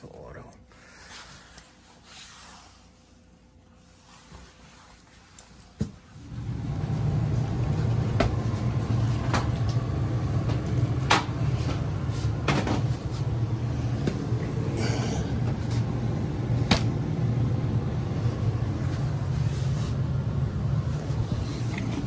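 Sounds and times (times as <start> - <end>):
gas furnace humming: 5.8 - 22.0.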